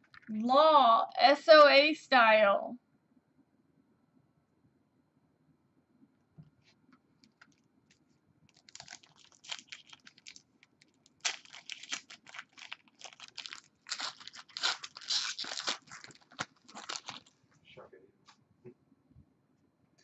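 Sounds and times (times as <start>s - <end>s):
foil wrapper tearing and crinkling: 8.5s - 17.4s.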